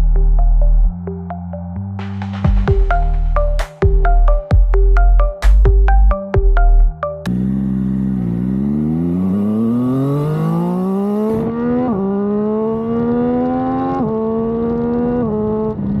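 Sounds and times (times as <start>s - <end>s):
motorcycle engine accelerating through gears: 7.2s - 16.0s.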